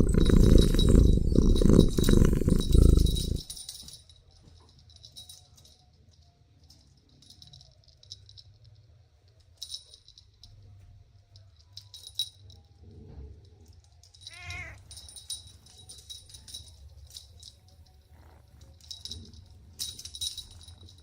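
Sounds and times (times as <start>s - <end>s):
high-pitched rattling: 0.0s - 3.6s
kitten meowing: 14.3s - 14.8s.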